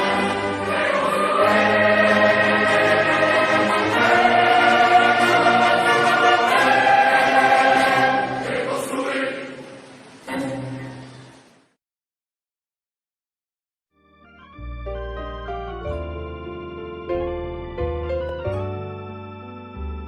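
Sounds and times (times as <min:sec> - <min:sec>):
choir singing held chords: 0:00.0 - 0:10.8.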